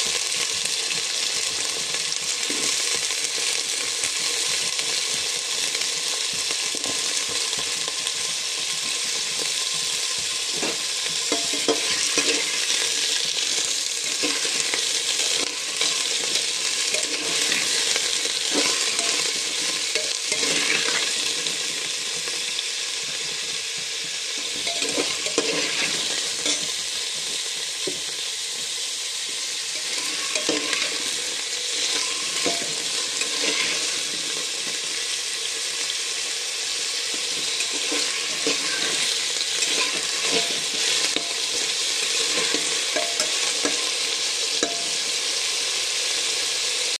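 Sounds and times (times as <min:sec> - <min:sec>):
jackfruit sizzling in oil: 0:00.0 - 0:47.0
spatula scraping pot: 0:08.8 - 0:21.7, 0:24.4 - 0:28.0, 0:29.7 - 0:34.8, 0:37.1 - 0:43.9.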